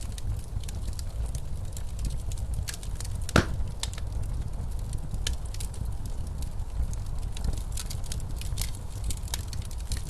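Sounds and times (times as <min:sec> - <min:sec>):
log fire crackling: 0:00.0 - 0:10.0
snowstorm wind low rumble: 0:00.0 - 0:10.0
sharp pops: 0:03.3 - 0:03.7.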